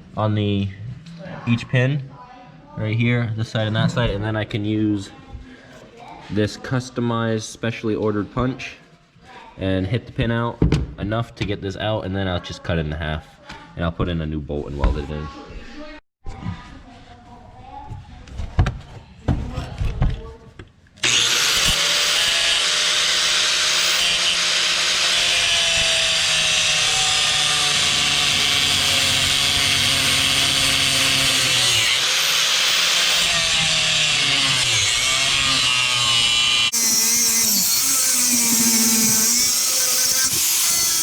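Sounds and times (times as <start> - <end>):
angle grinder cutting steel: 21.0 - 41.0.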